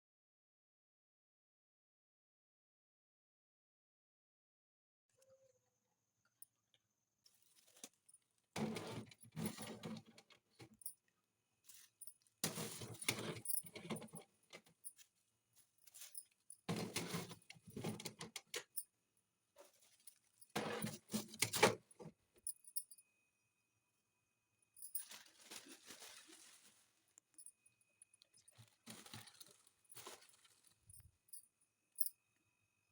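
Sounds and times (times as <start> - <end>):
objects rustling and clinking: 7.3 - 11.0, 11.6 - 18.9, 19.6 - 22.9, 24.8 - 32.1.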